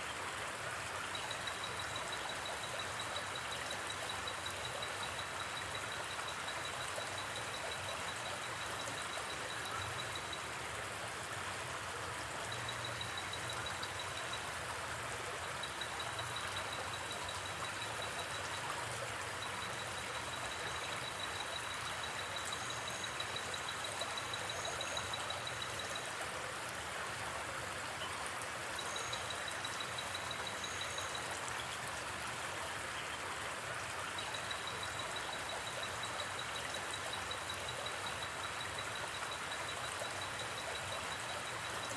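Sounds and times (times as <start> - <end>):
insect pulsing trill: 19.4 - 26.0.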